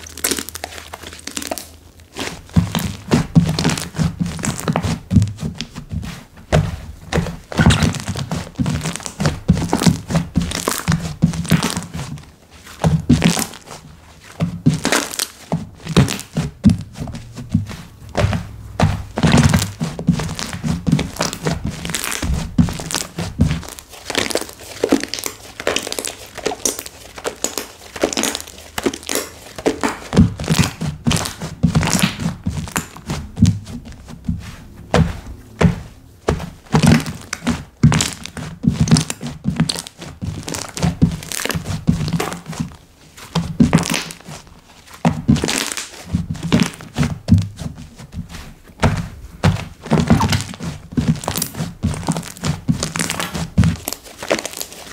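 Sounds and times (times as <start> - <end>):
slime squeezed by hand: 7.4 - 11.9.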